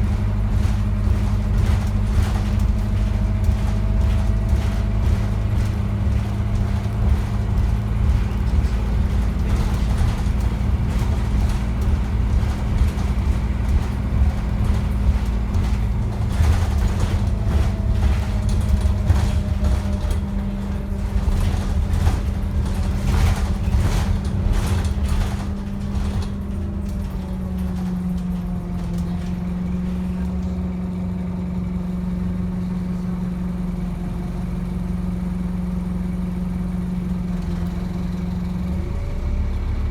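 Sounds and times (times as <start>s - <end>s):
rattles and knocks: 0.0s - 30.8s
diesel bus engine running: 0.0s - 39.9s.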